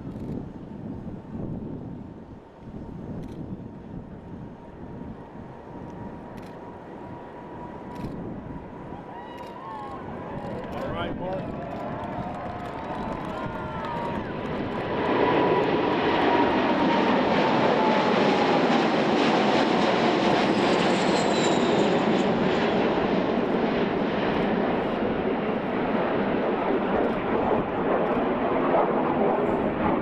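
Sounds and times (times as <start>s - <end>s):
jet engines at takeoff: 0.0s - 30.0s.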